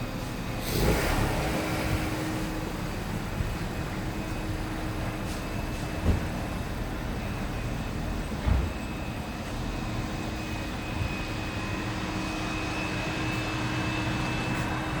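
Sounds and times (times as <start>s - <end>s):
machine drone with whine: 0.0s - 15.0s
short thump: 6.0s - 6.4s.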